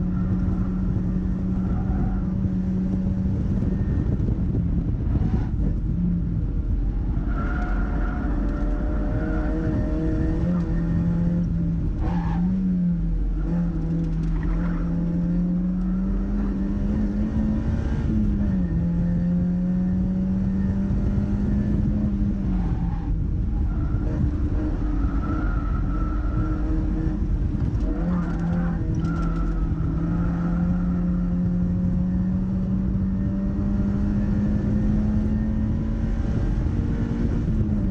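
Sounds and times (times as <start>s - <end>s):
car engine revving hard: 26.0s - 37.9s.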